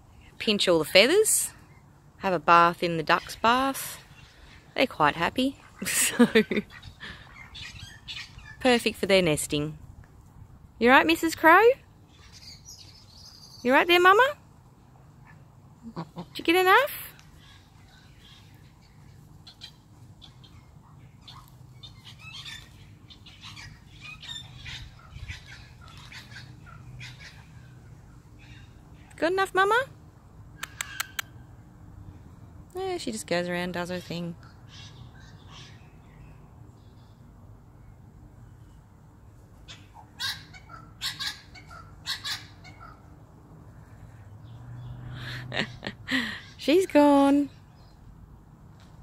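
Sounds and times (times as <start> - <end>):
raspy bird calls: 5.6 - 8.7, 12.1 - 14.1, 17.3 - 29.2, 34.4 - 36.1, 39.6 - 43.2
faint high bird chirps: 12.1 - 13.8.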